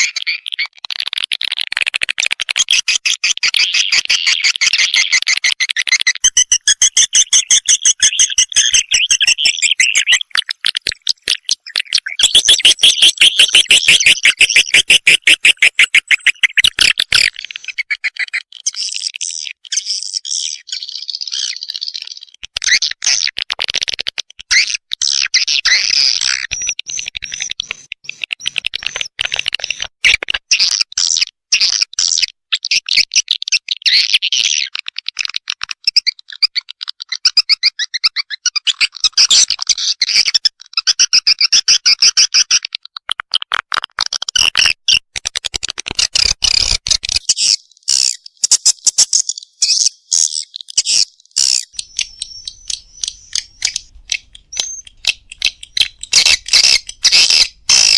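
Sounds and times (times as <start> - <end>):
recorded swiftlet twittering: 3.0 - 22.8, 46.2 - 57.9.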